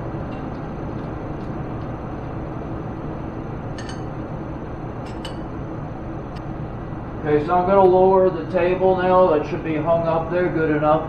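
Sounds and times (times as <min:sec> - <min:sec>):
low background hum: 0:00.0 - 0:11.0
light metallic clinks: 0:03.8 - 0:04.2.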